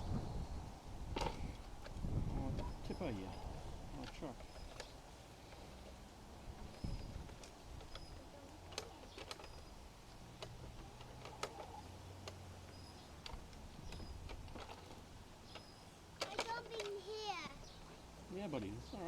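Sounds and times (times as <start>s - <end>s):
toy excavator clicks and scrapes: 6.7s - 17.5s.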